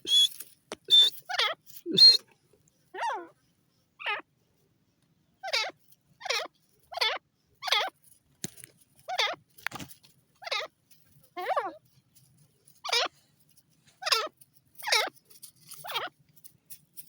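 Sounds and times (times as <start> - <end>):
francolin calling: 0.0 - 2.3.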